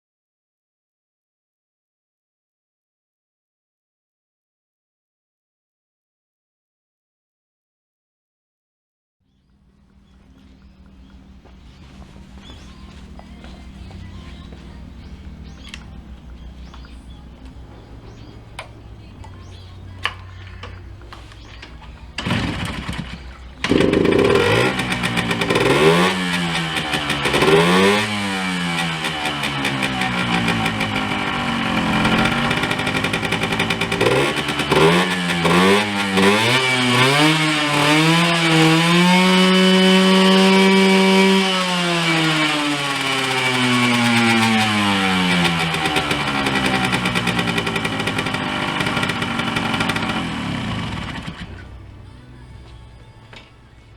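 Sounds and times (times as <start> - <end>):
two-stroke engine revving: 22.1 - 51.9.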